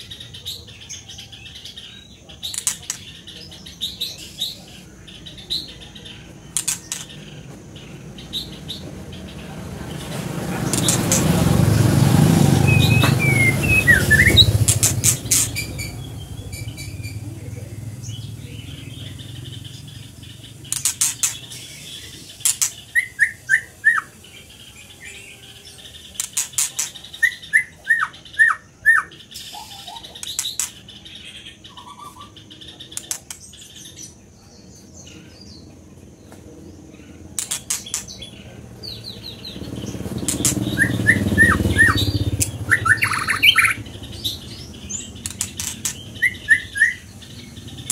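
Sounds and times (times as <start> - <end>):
songbird singing: 0.0 - 47.9.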